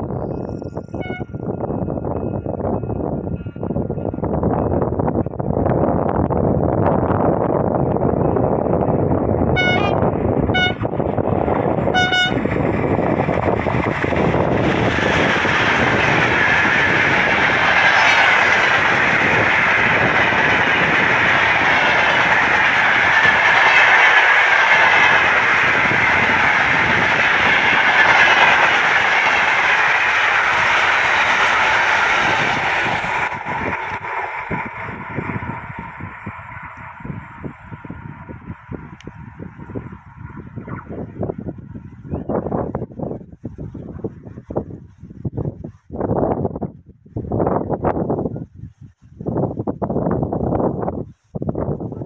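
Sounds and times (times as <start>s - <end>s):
freight train passing: 0.0s - 44.7s
train horn toots: 0.9s - 1.4s, 9.4s - 11.0s, 11.8s - 12.6s.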